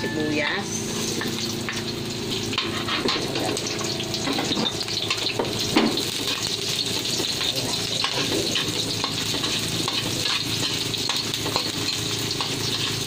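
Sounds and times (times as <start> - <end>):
garlic and onion sizzling: 0.0 - 13.0
metal spoon scraping wok: 2.3 - 5.4, 6.0 - 13.0.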